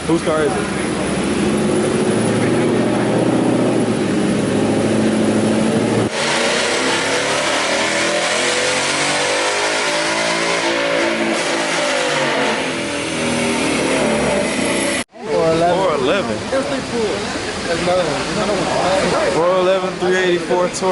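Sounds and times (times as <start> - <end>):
car engine revving on dyno: 0.0 - 15.1.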